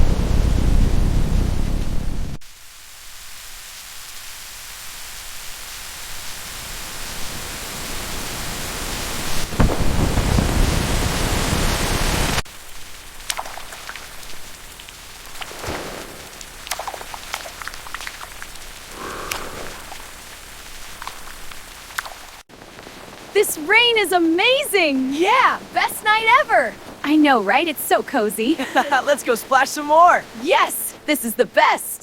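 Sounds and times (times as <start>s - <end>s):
thunder rumble: 0.0s - 2.4s, 7.2s - 21.9s
rain: 0.0s - 31.8s
water drips: 12.5s - 31.2s.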